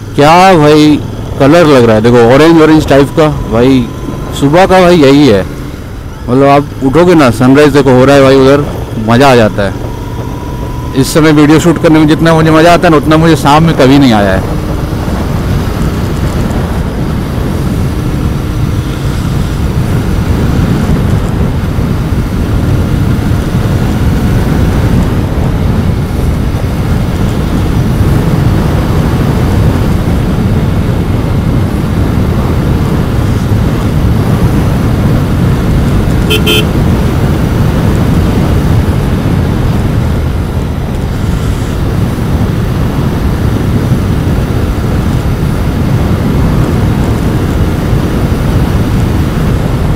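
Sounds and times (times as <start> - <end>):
motorcycle engine running: 0.0 - 49.9
horn toot: 36.2 - 36.8.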